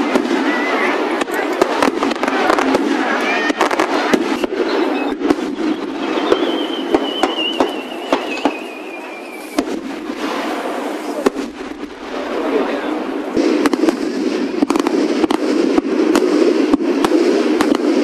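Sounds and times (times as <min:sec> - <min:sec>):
fireworks cracks and bangs: 0:00.0 - 0:18.0
whistling firework shell: 0:03.4 - 0:11.6.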